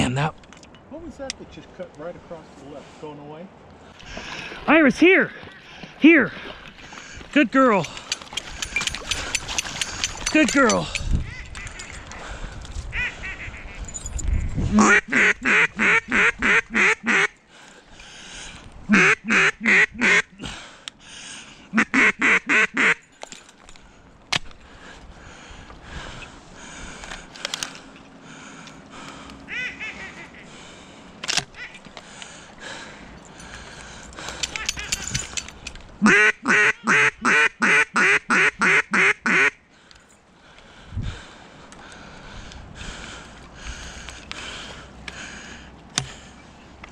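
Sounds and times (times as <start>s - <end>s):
duck quacking: 11.2s - 12.0s, 12.9s - 13.8s, 14.7s - 17.3s, 18.9s - 20.3s, 21.7s - 23.0s, 29.5s - 30.9s, 36.0s - 39.6s.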